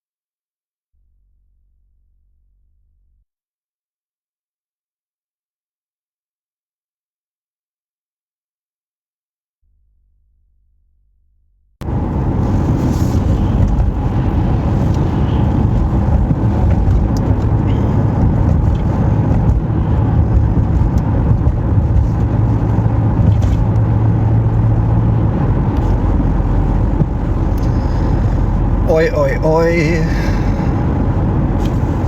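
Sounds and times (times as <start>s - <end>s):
car engine rumble: 11.8s - 32.0s
road noise inside car: 11.8s - 32.0s.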